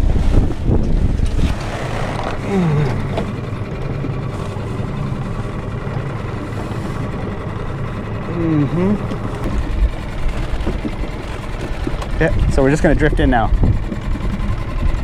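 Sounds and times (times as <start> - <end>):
outboard motor idling: 0.0 - 15.0
short falling voice: 2.4 - 3.2, 8.3 - 9.2.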